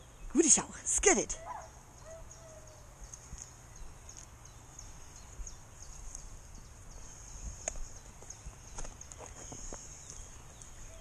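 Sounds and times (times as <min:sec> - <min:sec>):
birds calling: 0:00.0 - 0:11.0.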